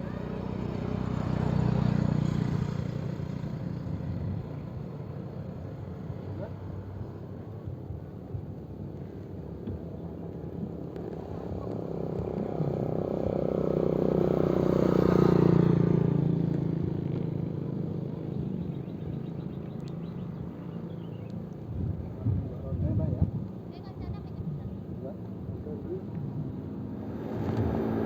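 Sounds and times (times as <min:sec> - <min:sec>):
vehicle passing by: 0:11.3 - 0:17.5, 0:25.0 - 0:28.0.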